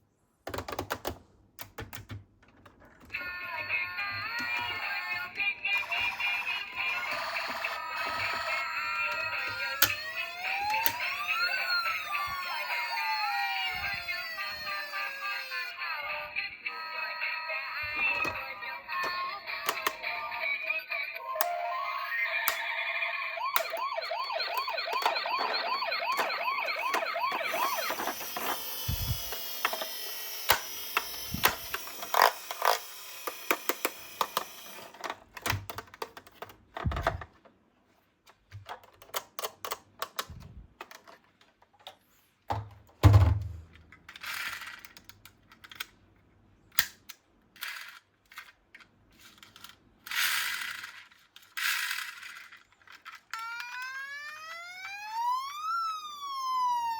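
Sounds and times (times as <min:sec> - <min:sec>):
toy electronic siren warbling: 0:03.2 - 0:34.9, 0:53.3 - 0:56.9
toy cars clicking and clattering: 0:04.1 - 0:15.7, 0:18.0 - 0:20.6, 0:23.4 - 0:36.8, 0:38.6 - 0:41.7, 0:43.7 - 0:46.0, 0:46.7 - 0:55.0.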